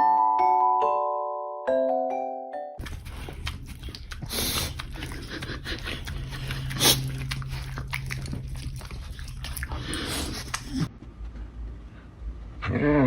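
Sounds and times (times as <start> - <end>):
dog making noises: 2.8 - 10.9.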